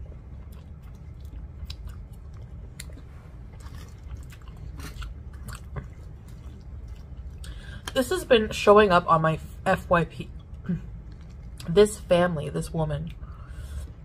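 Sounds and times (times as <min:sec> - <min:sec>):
chewing with wet mouth clicks: 0:00.0 - 0:08.0, 0:10.3 - 0:11.7.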